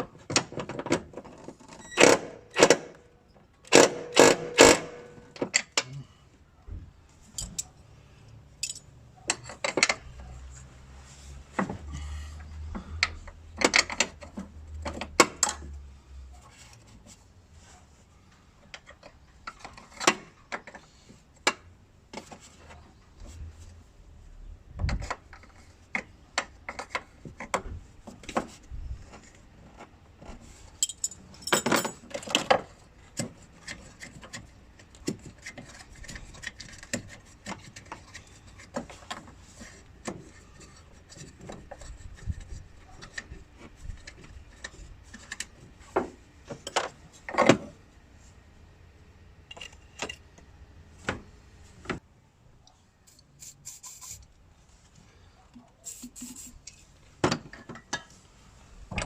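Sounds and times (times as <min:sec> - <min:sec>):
hand tools clinking on metal: 0:08.6 - 0:09.6, 0:30.8 - 0:32.1.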